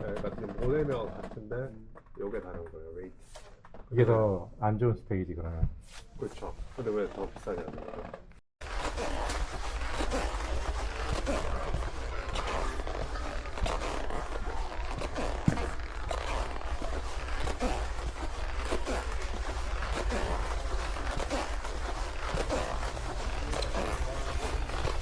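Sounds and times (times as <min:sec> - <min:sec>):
goods rustling: 0:08.6 - 0:25.0
small clicks and scuffs: 0:08.7 - 0:25.0
steady low hum: 0:08.9 - 0:25.0.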